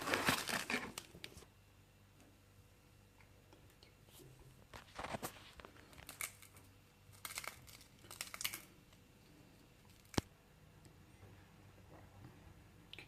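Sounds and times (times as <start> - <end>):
dry food crunching: 5.0 - 8.7.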